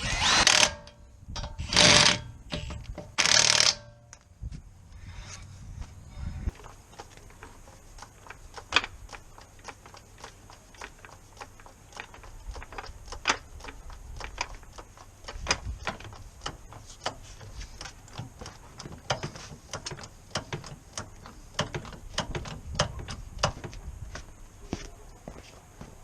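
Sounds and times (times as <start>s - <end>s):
hand tools clicking and knocking: 0.0s - 4.3s, 6.5s - 23.8s
low rumble: 4.3s - 6.6s.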